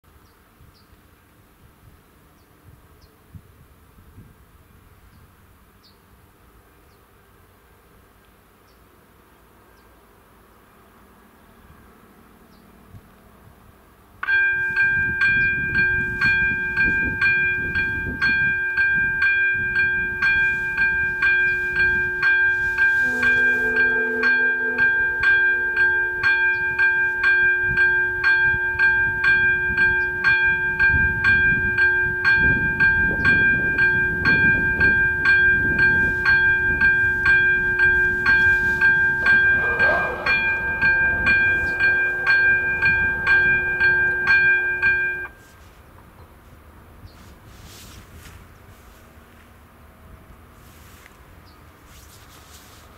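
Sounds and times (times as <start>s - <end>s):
level crossing bell ringing: 14.2s - 45.4s
short low horn tone: 20.4s - 27.9s, 35.8s - 45.4s
low rumble: 37.2s - 45.3s.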